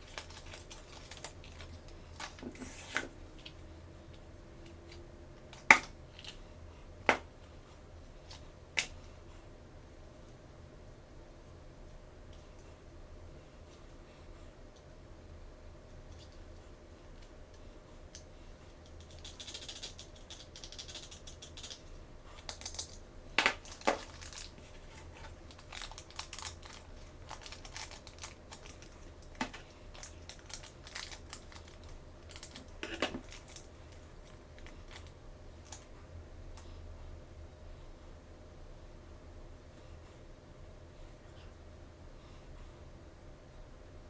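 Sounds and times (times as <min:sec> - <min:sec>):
packaging crinkling: 0:00.0 - 0:03.0, 0:22.5 - 0:35.8.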